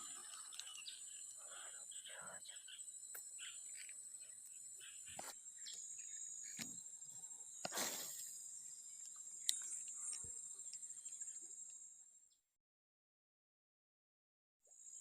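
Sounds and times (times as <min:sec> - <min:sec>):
insect chorus: 0:00.0 - 0:12.4, 0:14.7 - 0:15.0.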